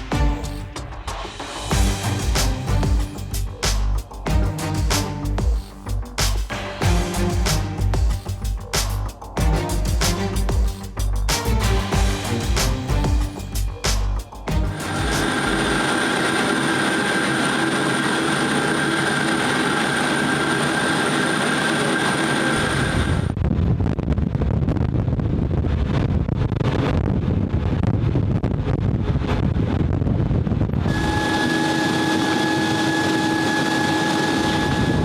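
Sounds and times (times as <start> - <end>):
heavy low rumble: 0.0 - 16.1
jet engine roar with high whine: 15.3 - 23.4, 30.9 - 35.0.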